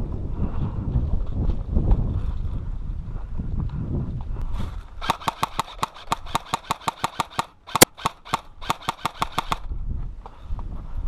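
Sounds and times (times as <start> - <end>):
airsoft rifle full-auto bursts: 5.0 - 9.7.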